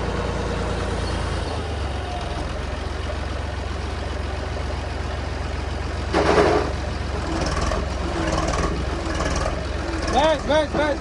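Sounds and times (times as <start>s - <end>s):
heavy diesel engine rumble: 0.0s - 11.0s.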